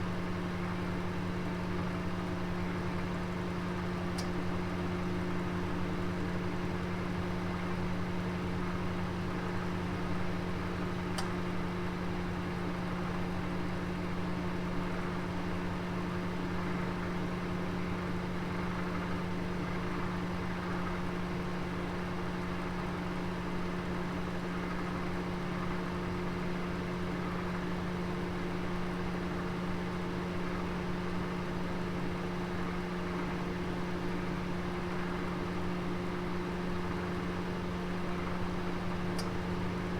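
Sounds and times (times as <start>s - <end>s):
oven humming: 0.4s - 14.3s, 35.0s - 39.9s.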